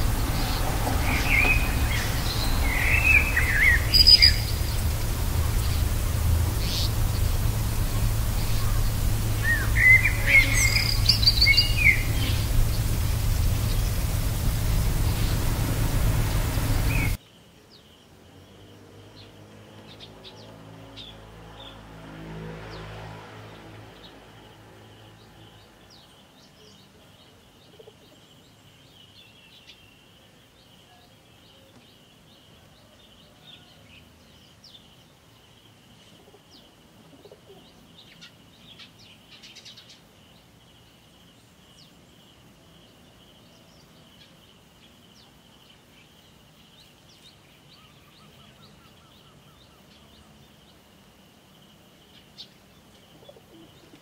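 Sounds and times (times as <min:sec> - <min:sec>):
birds chirping: 0:00.0 - 0:21.8.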